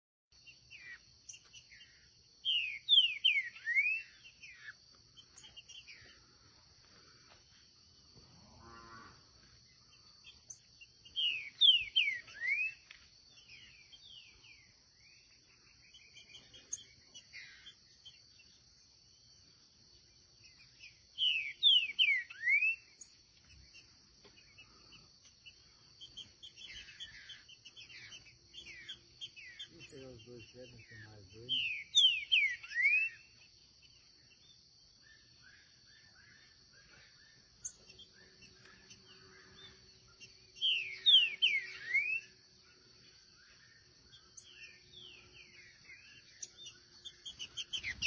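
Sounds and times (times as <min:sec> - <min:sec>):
bird whistling song: 0:00.7 - 0:04.8, 0:10.3 - 0:15.3, 0:20.4 - 0:23.9, 0:26.0 - 0:33.4, 0:35.1 - 0:42.4, 0:43.4 - 0:48.0.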